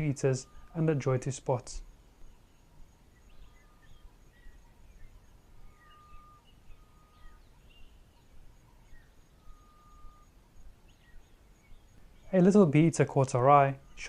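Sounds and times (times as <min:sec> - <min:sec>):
birds chirping: 0:00.0 - 0:14.0
faint pulsing high tone: 0:00.0 - 0:14.0
whistled bird notes: 0:02.3 - 0:12.4.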